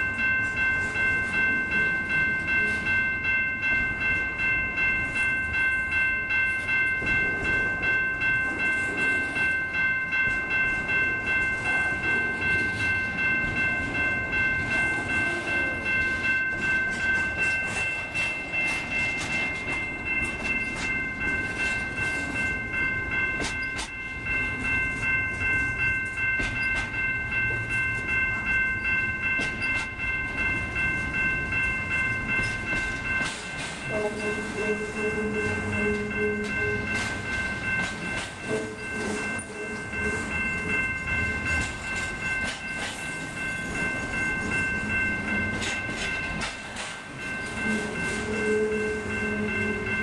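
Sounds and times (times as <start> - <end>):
low rumble of train: 0.0 - 50.0
wheels clicking over rail joints: 6.4 - 24.7, 25.3 - 50.0.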